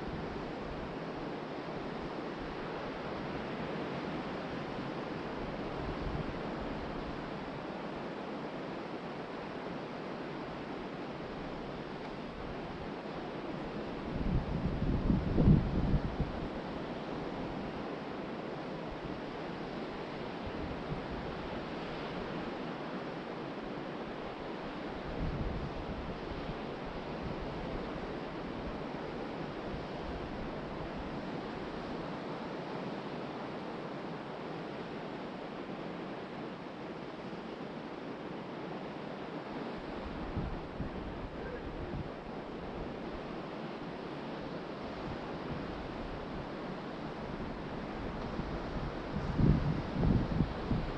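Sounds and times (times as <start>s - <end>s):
ocean surf washing onto beach: 0.0s - 50.9s
wind buffeting microphone: 14.0s - 16.6s, 47.2s - 50.9s.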